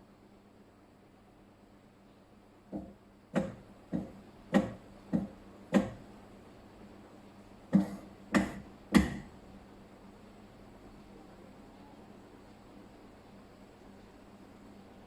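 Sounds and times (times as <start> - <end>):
sharp ringing knocks: 2.8 - 6.0, 7.8 - 9.3.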